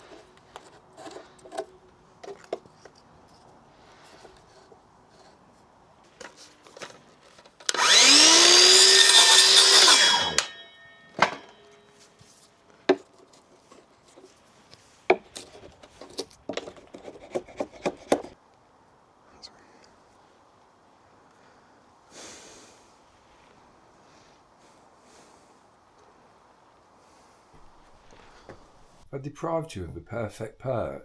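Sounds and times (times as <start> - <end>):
power tool motor spinning: 7.6 - 10.6
wood knocking and clicking: 15.1 - 18.3.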